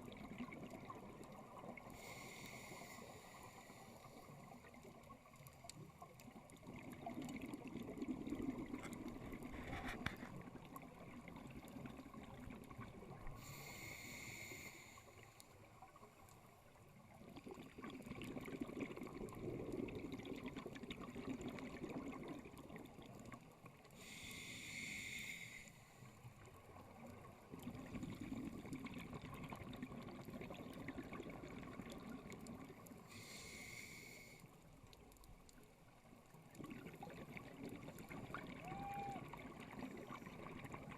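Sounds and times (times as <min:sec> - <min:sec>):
regulator hiss on inhale: 0:01.8 - 0:04.7, 0:13.2 - 0:15.6, 0:23.8 - 0:26.4, 0:33.0 - 0:34.8
bubbling exhaust underwater: 0:06.3 - 0:15.2, 0:17.1 - 0:25.2, 0:26.9 - 0:34.2, 0:36.4 - 0:40.9.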